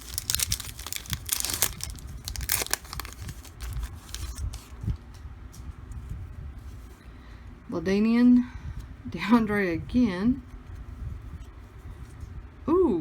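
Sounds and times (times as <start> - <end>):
card pack wrapper crinkling: 0.0 - 4.8.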